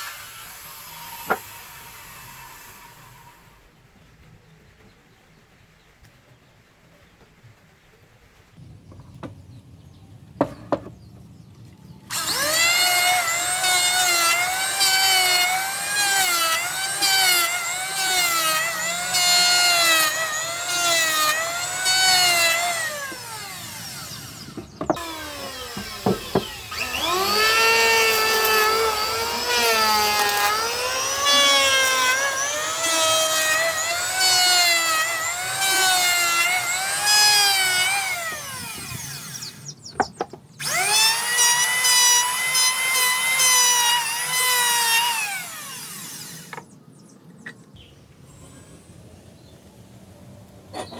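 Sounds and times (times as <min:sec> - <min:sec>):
power tool cutting wood: 0:00.0 - 0:03.5, 0:12.1 - 0:46.8
knocks on wood: 0:24.6 - 0:25.0.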